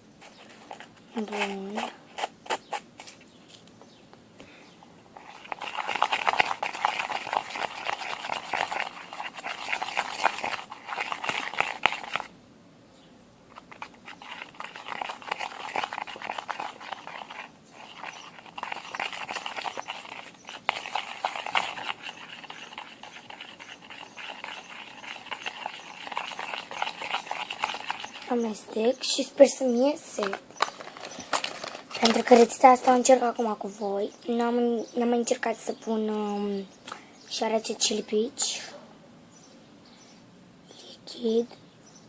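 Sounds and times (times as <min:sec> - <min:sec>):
slime squelching while stirred: 0:00.2 - 0:02.4, 0:05.2 - 0:12.3, 0:13.5 - 0:33.6.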